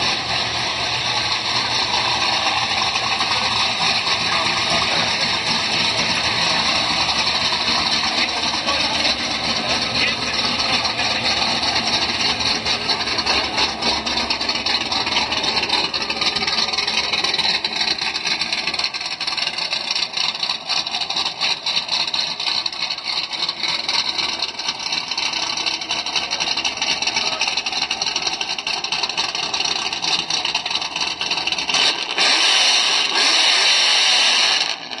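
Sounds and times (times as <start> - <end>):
distorted car engine running: 0.0 - 35.0.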